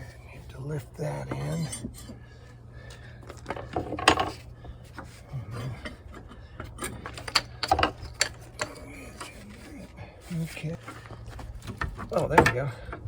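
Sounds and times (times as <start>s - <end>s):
hardware clicks and knocks: 3.2s - 5.2s, 5.8s - 9.4s, 10.8s - 13.0s.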